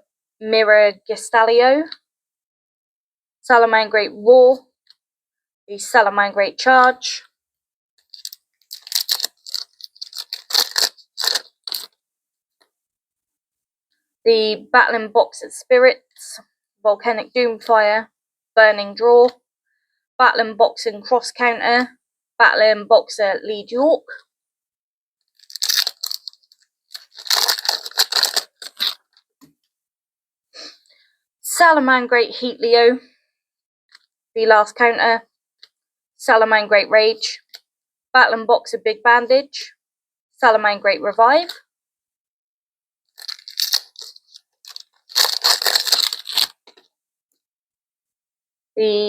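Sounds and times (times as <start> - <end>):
foil wrapper crinkling and tearing: 8.1 - 12.0, 25.3 - 29.1, 43.2 - 46.9.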